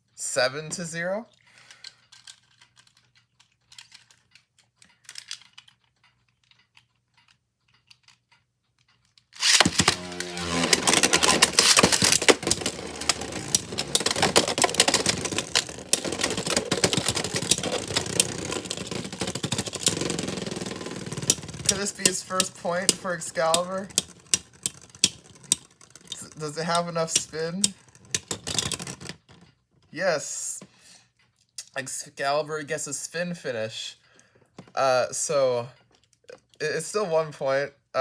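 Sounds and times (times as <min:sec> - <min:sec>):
faint handling clicks: 0:01.3 - 0:29.5
spinning tops grinding whir: 0:09.4 - 0:29.0
plastic tops clashing: 0:09.4 - 0:29.4.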